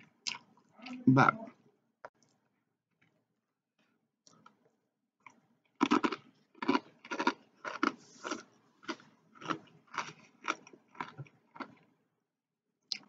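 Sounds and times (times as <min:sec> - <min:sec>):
person chewing crunchy food: 0:00.0 - 0:00.5, 0:05.2 - 0:12.0.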